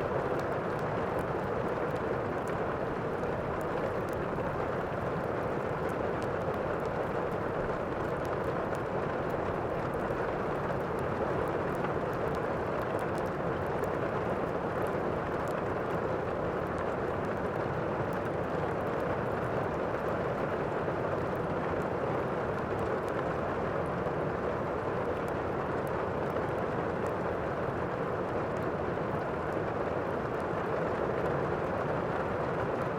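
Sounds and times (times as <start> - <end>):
log fire crackling: 0.0 - 22.0
steady rain: 0.0 - 32.9.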